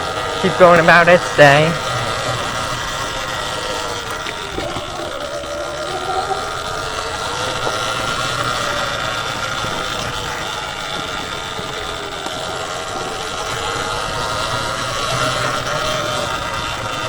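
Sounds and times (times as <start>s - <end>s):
continuous rushing noise: 0.0s - 17.0s
electric motorbike motor whining: 0.0s - 17.0s.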